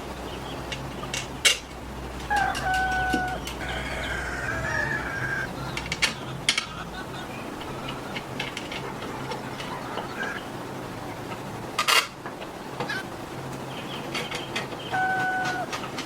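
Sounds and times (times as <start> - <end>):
low steady hum: 0.0 - 16.0
scattered taps and clicks: 7.6 - 10.1.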